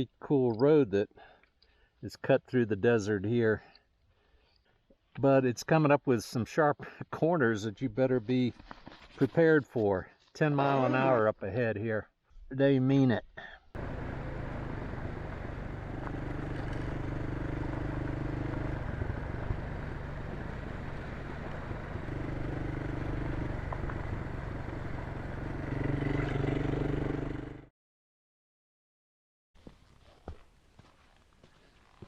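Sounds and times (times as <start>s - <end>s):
road and wind noise: 13.8s - 27.6s
motorcycle engine running: 13.8s - 27.7s.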